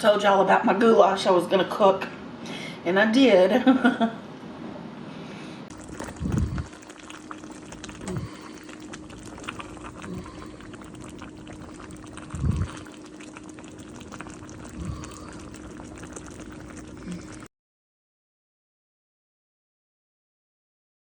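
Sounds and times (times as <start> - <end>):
wet mouth clicks and slurps: 5.7 - 17.5.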